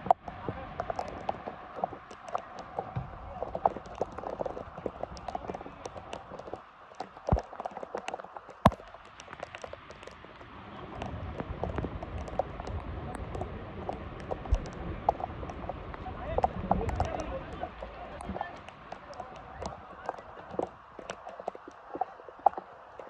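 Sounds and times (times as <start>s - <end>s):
rain: 0.0s - 23.0s.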